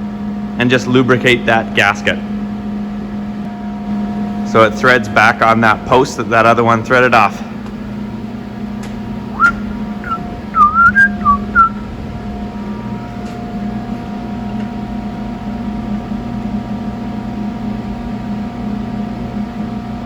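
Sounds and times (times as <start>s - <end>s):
steady mechanical hum: 0.0s - 20.0s
person whistling short notes: 9.3s - 11.8s.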